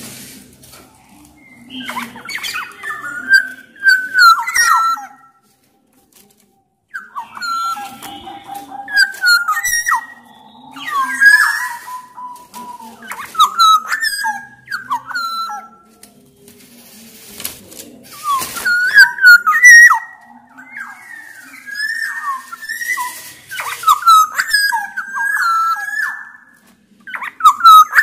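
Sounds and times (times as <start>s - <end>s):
harsh rasping bird notes: 0.0s - 6.3s, 6.9s - 28.0s
oriole singing fluting whistles: 1.2s - 5.4s, 6.9s - 15.9s, 18.1s - 28.0s.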